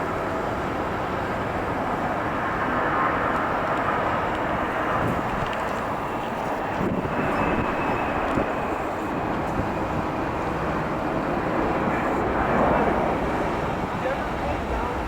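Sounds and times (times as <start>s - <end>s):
jet engines rushing: 0.0s - 15.0s
faint high whine: 5.7s - 13.5s.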